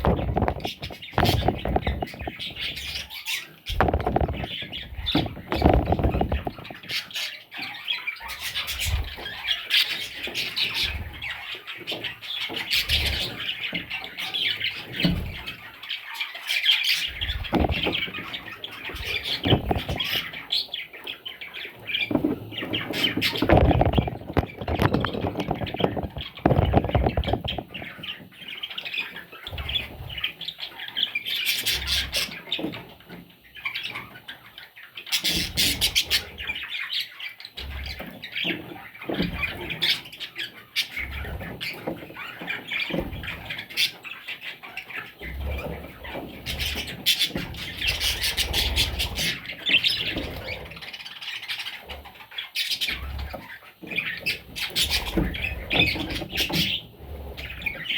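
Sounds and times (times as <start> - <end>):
budgerigar chicks squawking: 0.0 - 32.8, 35.1 - 57.9.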